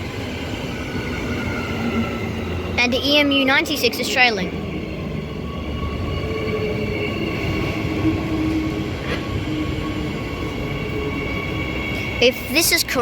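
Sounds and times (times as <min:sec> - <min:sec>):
electric train running past: 0:00.0 - 0:13.0.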